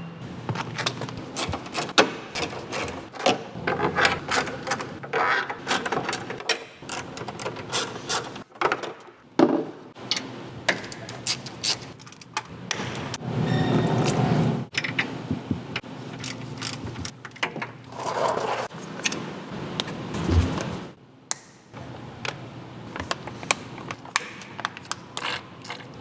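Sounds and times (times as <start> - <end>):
hand tools clicking and knocking: 0.6 - 13.1.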